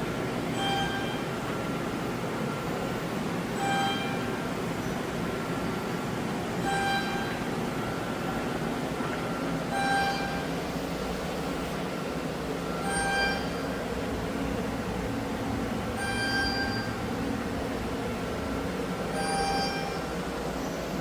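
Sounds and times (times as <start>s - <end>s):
machine mechanical hum: 0.0s - 21.0s
short ringing tone: 0.6s - 1.3s, 3.6s - 4.4s, 6.6s - 7.9s, 9.7s - 10.6s, 12.7s - 13.7s, 16.0s - 17.0s, 19.1s - 20.1s.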